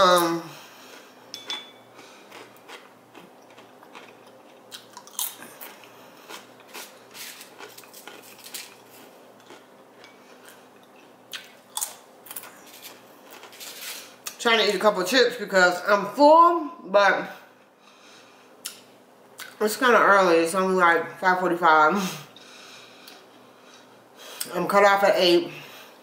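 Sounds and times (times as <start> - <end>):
chips crunching while chewed: 1.9 - 14.4.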